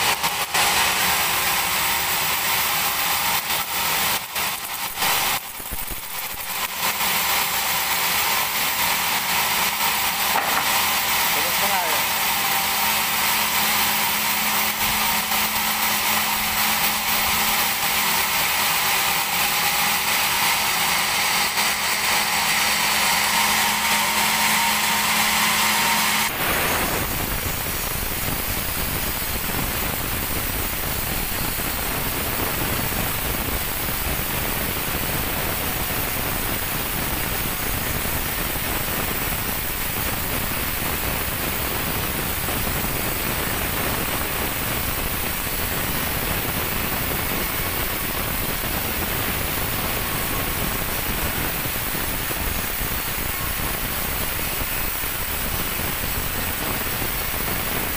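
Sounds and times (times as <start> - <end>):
band saw cutting log: 0.0 - 29.4.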